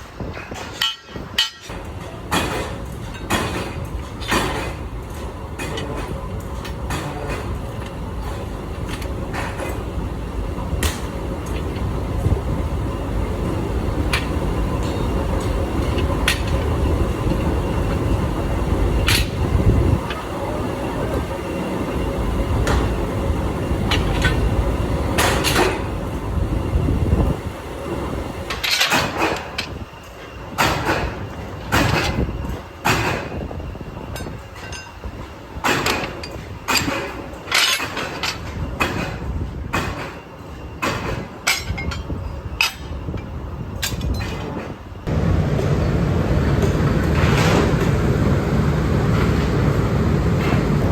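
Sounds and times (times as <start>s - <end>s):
steady machine hum: 1.7s - 28.8s, 44.9s - 50.9s
machinery rumbling: 41.0s - 50.9s.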